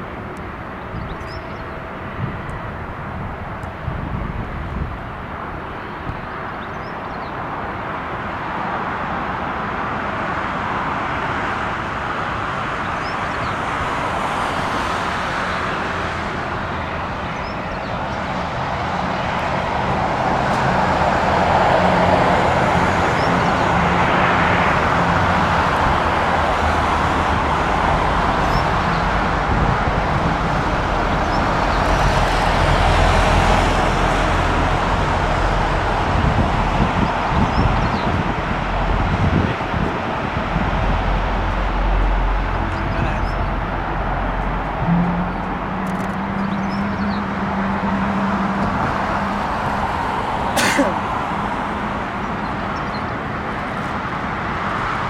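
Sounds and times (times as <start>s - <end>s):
jet engines at take-off power: 0.0s - 55.0s
deep rumble: 34.4s - 49.8s.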